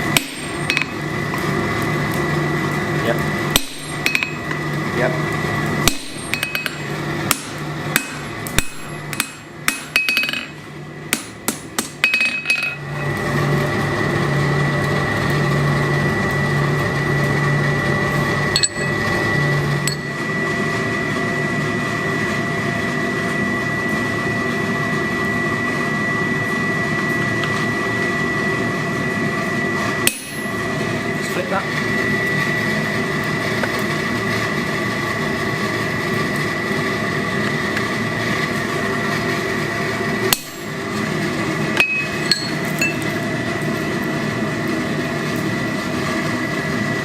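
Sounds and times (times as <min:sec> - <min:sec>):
hammer striking steel on anvil: 0:00.0 - 0:01.0, 0:03.5 - 0:04.4, 0:05.8 - 0:12.8, 0:18.5 - 0:19.0, 0:19.9 - 0:20.2, 0:30.0 - 0:30.5, 0:40.3 - 0:40.7, 0:41.8 - 0:43.1
steady hum: 0:00.0 - 0:47.0
steady running noise: 0:00.0 - 0:47.0.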